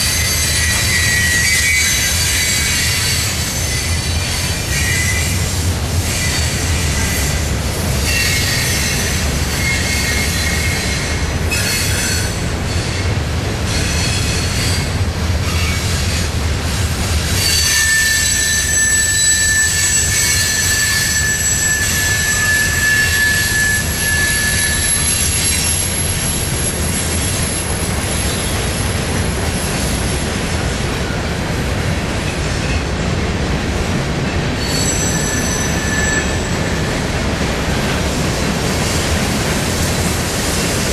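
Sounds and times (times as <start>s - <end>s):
high-pitched wheel squeal: 0.0s - 5.4s, 8.0s - 12.8s, 17.4s - 27.6s, 34.6s - 37.0s
freight train wheels rumbling: 0.0s - 40.9s.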